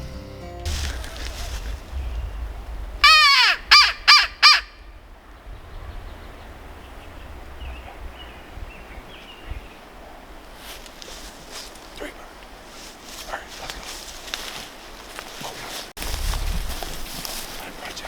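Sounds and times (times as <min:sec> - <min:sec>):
wind rumbling on microphone: 0:00.6 - 0:18.0
crow cawing: 0:03.0 - 0:04.9.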